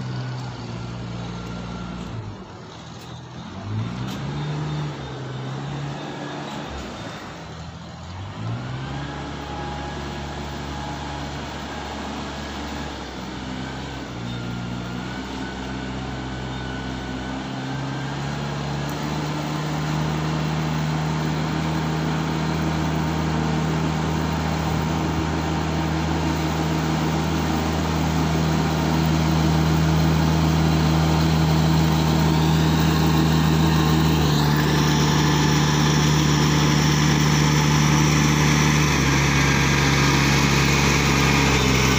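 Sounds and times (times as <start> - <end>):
rice transplanter engine running: 9.0 - 41.9.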